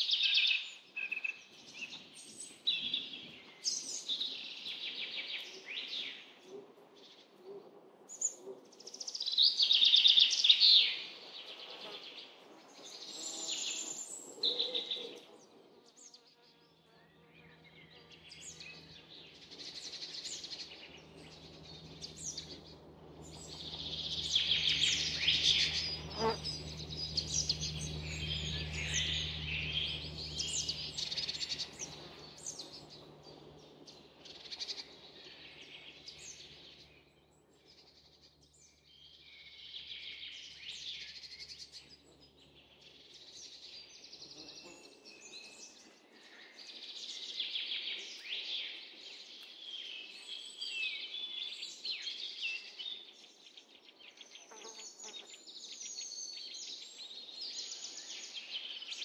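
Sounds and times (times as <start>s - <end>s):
songbirds chirping: 0.0s - 59.0s
low steady hum: 16.9s - 39.5s.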